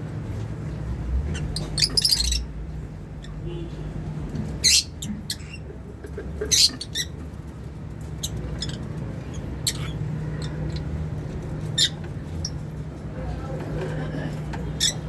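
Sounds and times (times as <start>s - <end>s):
lovebirds chirping and squawking: 1.2s - 3.4s, 4.4s - 12.8s, 14.6s - 15.0s.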